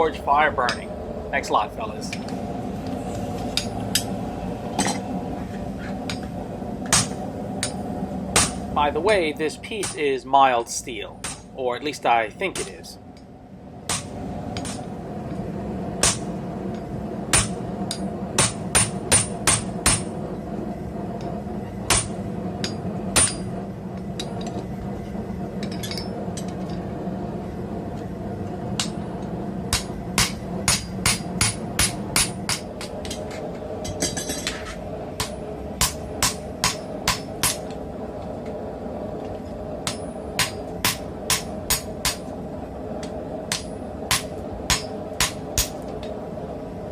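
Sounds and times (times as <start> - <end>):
steady hum: 0.0 - 46.9
hammer striking steel on anvil: 9.8 - 10.1, 16.0 - 16.3, 21.9 - 23.5, 29.7 - 37.8, 39.8 - 42.3, 43.5 - 45.8.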